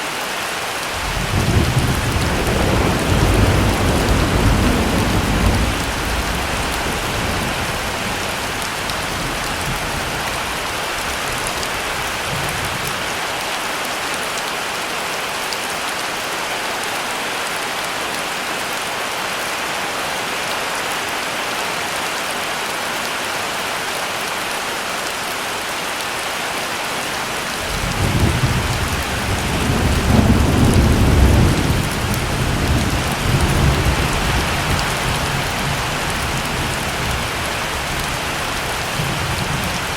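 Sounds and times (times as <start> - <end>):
heavy rain falling: 0.0 - 39.9
thunder rumbling: 1.0 - 13.1, 27.4 - 39.9.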